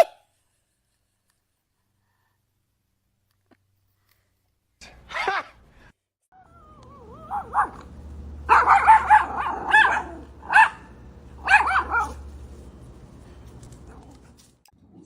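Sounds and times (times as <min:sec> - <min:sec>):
dog whining: 0:06.4 - 0:07.8
dog barking: 0:07.2 - 0:07.9, 0:08.5 - 0:12.3.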